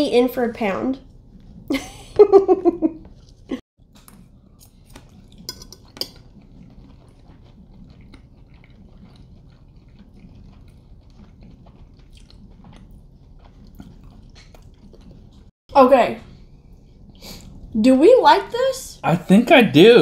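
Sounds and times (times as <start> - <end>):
quiet chewing: 1.1 - 1.8, 3.0 - 15.5, 16.3 - 17.7
forks clicking on plates: 5.4 - 6.2.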